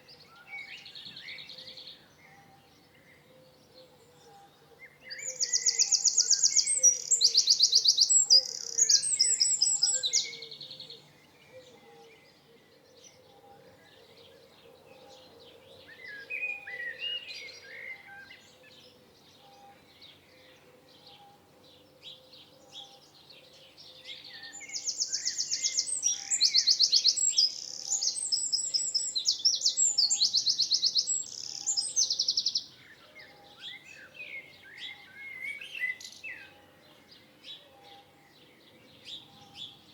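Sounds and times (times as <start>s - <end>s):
bird chirps: 0.0s - 14.0s, 23.8s - 39.9s
songbird trilling: 5.1s - 10.8s, 24.2s - 32.7s.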